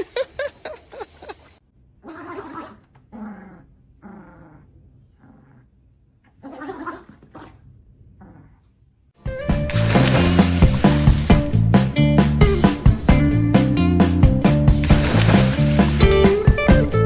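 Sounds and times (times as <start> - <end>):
dog growling: 2.0 - 5.8, 6.4 - 8.7.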